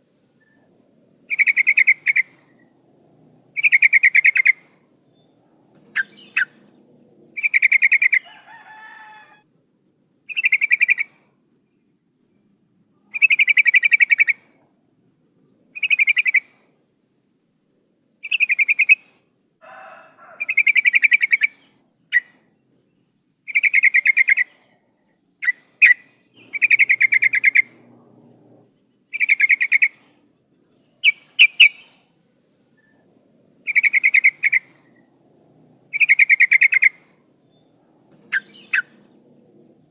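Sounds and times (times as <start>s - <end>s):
bird pulsed call: 0.0s - 8.4s, 10.2s - 11.2s, 13.0s - 14.5s, 15.8s - 16.6s, 18.2s - 19.2s, 20.4s - 28.5s, 29.1s - 30.2s, 30.8s - 39.9s
sharp bird chirps: 0.4s - 8.3s, 10.2s - 11.1s, 18.2s - 19.1s, 20.5s - 24.6s, 25.4s - 27.9s, 29.1s - 30.2s, 30.8s - 39.6s.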